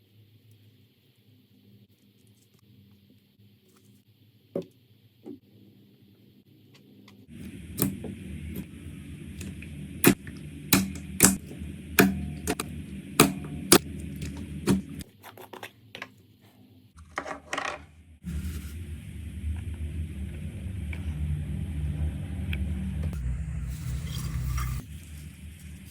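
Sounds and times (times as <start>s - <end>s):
low steady hum: 7.3s - 15.0s, 17.0s - 25.9s.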